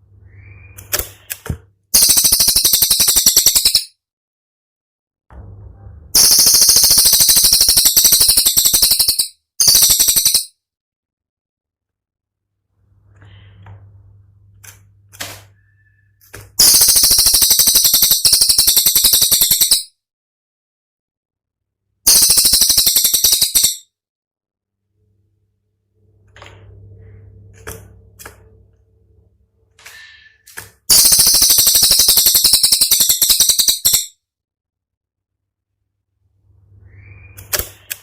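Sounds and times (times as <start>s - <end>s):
faint whistle: 0.2s - 0.9s, 36.7s - 37.5s
songbird rattling trill: 2.0s - 3.9s, 6.2s - 10.5s, 16.6s - 19.9s, 22.1s - 23.8s, 30.9s - 34.1s
bird rattling trill of clicks: 30.9s - 34.1s.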